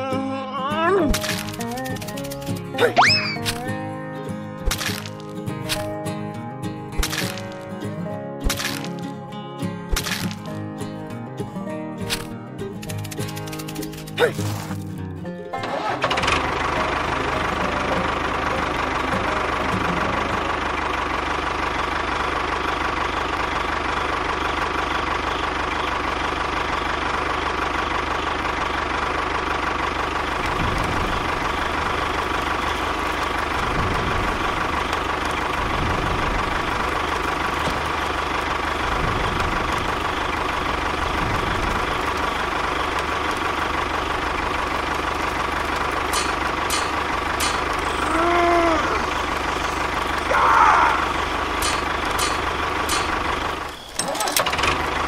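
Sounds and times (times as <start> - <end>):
tractor engine droning: 0.0 - 55.0.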